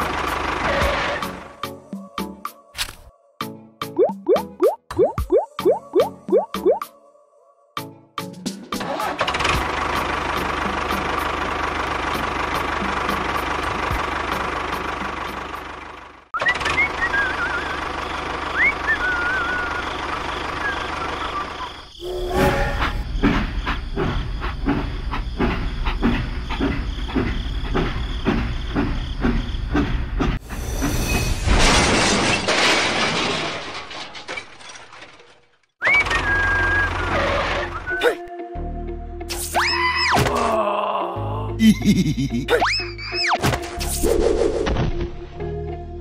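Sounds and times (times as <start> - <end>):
short whistling chirps: 16.4 - 17.8, 18.5 - 20.0, 35.8 - 38.1
train wheels clattering over rail joints: 22.8 - 35.5.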